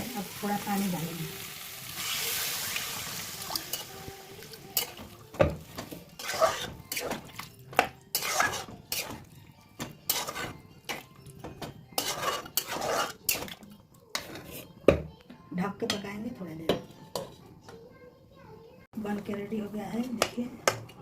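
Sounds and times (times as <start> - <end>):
spoon scraping a cooking pot: 4.7 - 5.1, 5.7 - 15.0.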